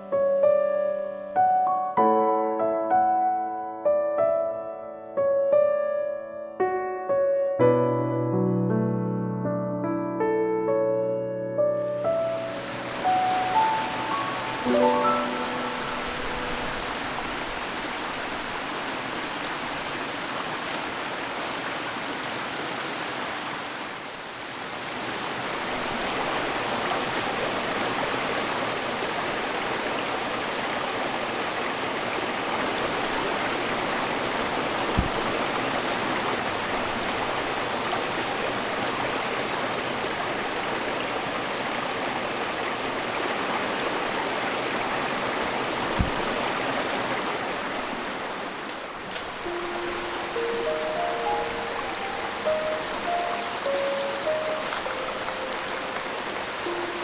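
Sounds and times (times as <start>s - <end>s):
mountain stream running: 11.8s - 57.0s.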